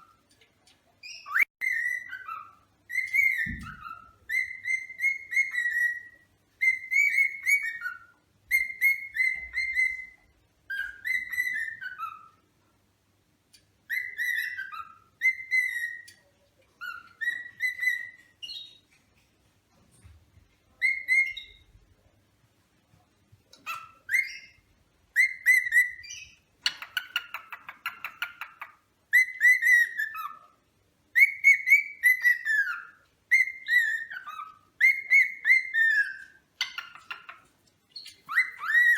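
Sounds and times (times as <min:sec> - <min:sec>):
cockatiel whistling: 0:01.0 - 0:12.4, 0:13.8 - 0:16.2, 0:16.8 - 0:18.8, 0:20.8 - 0:21.7, 0:23.6 - 0:38.9
rasping bird chatter: 0:36.6 - 0:38.9.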